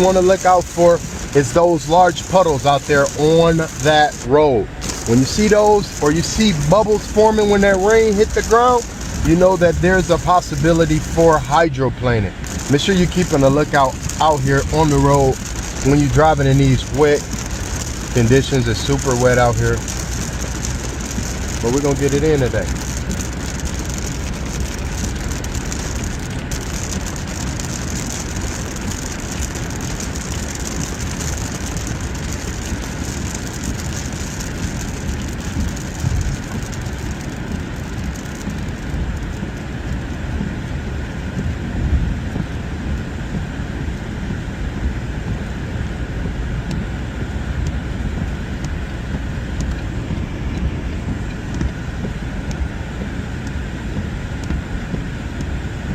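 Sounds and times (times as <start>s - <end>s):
hiss of rain and spray: 0.0s - 55.9s
tyre and road rumble: 0.0s - 55.9s.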